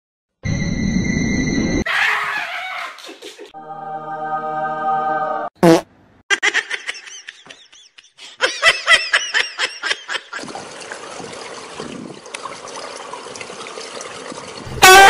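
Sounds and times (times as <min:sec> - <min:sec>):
high-pitched laughter: 0:01.9 - 0:03.5, 0:06.3 - 0:10.5
pool water noise: 0:08.6 - 0:15.0.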